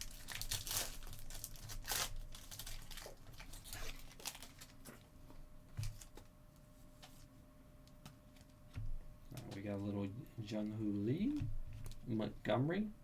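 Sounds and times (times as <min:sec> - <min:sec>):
cards crackling: 0:00.0 - 0:04.9
foil wrapper crinkling and tearing: 0:00.0 - 0:05.0.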